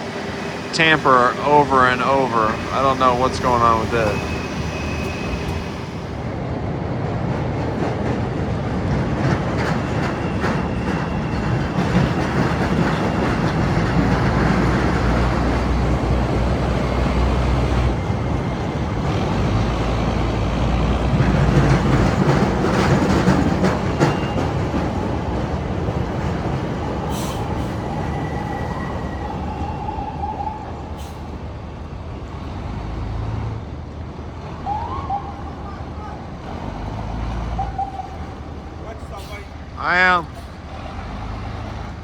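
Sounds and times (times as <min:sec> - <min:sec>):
elevated train rumbling: 0:00.0 - 0:42.0
train wheels clattering: 0:07.2 - 0:29.0.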